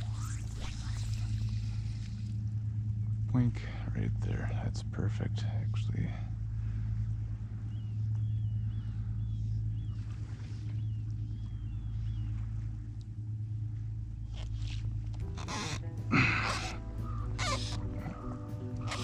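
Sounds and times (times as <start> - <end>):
boat motor humming: 0.0 - 19.0
faint bird chirps: 7.5 - 12.7, 15.3 - 19.0.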